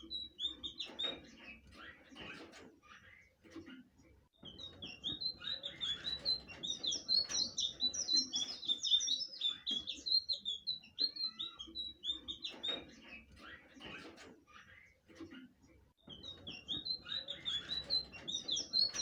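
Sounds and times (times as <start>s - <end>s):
bird singing high whistled notes: 4.5s - 12.5s, 16.1s - 19.0s.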